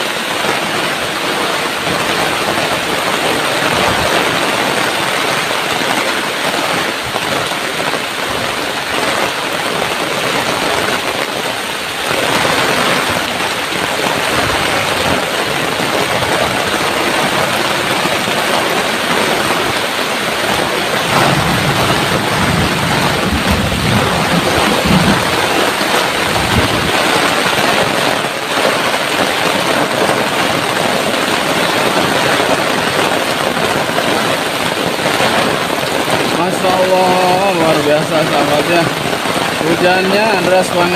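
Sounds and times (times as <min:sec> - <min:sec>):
heavy rain hissing: 0:00.0 - 0:40.9
low rumble: 0:21.0 - 0:27.0.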